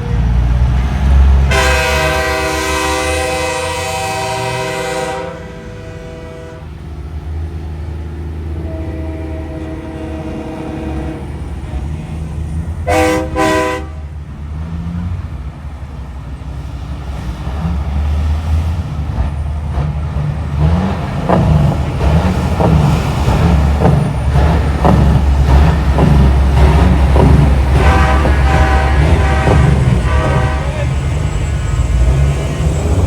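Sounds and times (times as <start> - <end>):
diesel truck engines rumbling: 0.0 - 33.0
truck air horn blasts: 1.4 - 6.8, 8.6 - 11.4, 12.8 - 14.1, 27.1 - 31.1.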